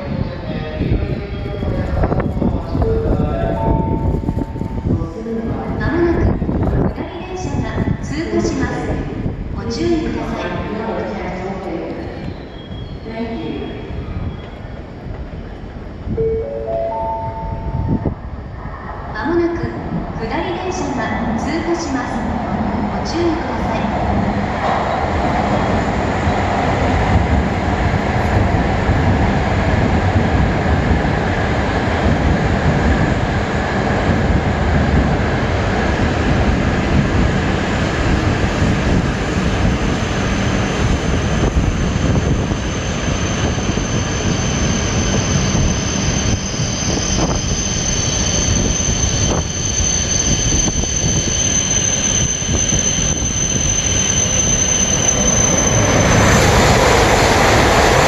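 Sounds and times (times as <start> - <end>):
train passing rushing noise: 16.9 - 58.0.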